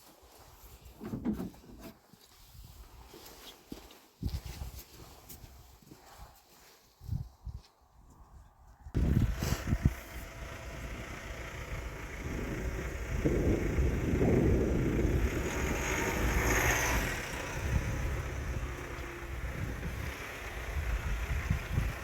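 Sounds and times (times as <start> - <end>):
wind buffeting microphone: 7.0 - 22.0
engine running: 9.0 - 22.0.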